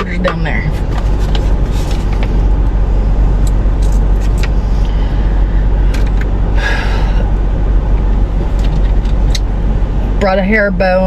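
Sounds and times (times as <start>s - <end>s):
car engine and air conditioning: 0.0s - 11.0s.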